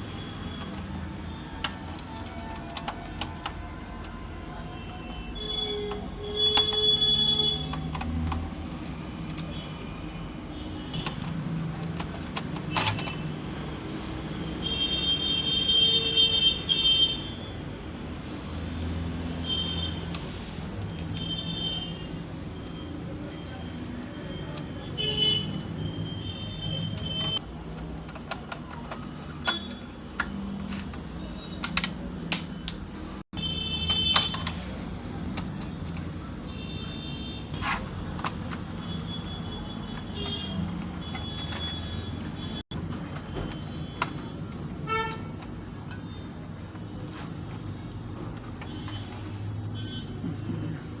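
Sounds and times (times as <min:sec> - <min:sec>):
sharp clicks and taps: 0:26.9 - 0:32.9.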